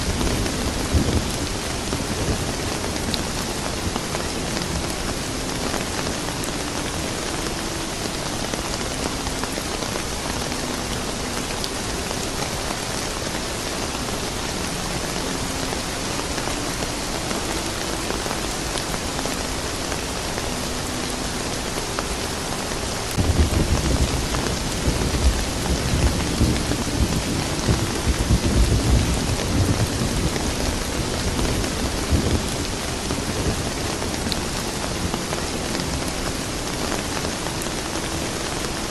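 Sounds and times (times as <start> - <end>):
thunder rumbling: 0.0 - 6.2, 23.1 - 37.4
rain falling: 0.0 - 38.9.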